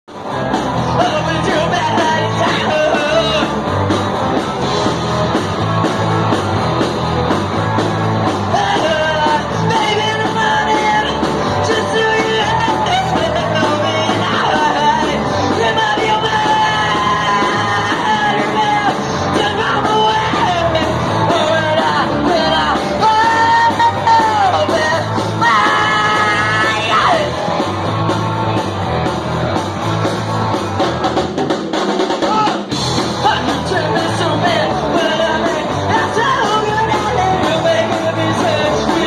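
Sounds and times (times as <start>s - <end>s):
live rock band playing: 0.1s - 39.0s
singer yelling and wailing: 8.5s - 27.4s, 32.2s - 39.0s.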